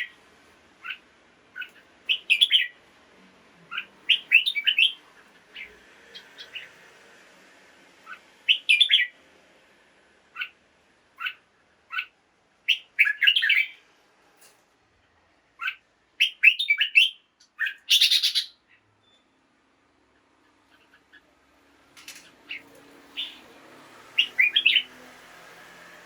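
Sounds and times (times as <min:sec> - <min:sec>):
bird chirping: 0:00.8 - 0:02.8, 0:03.7 - 0:06.8, 0:08.0 - 0:09.2, 0:10.3 - 0:10.6, 0:11.2 - 0:13.8, 0:15.6 - 0:19.3, 0:22.0 - 0:23.5, 0:24.1 - 0:25.0
rough noisy bird call: 0:00.8 - 0:02.8, 0:03.7 - 0:07.0, 0:08.0 - 0:09.2, 0:22.0 - 0:26.0.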